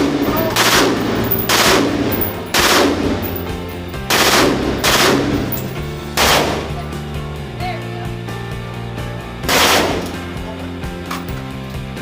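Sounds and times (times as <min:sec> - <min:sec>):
gunshots with echo: 0:00.0 - 0:06.8, 0:09.5 - 0:10.0.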